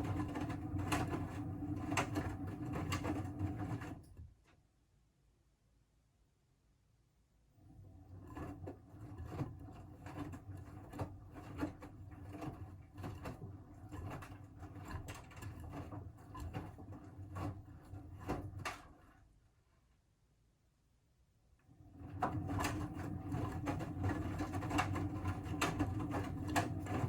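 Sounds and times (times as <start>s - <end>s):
washing machine motor hum: 0.0s - 4.3s, 7.6s - 19.2s, 21.7s - 27.0s.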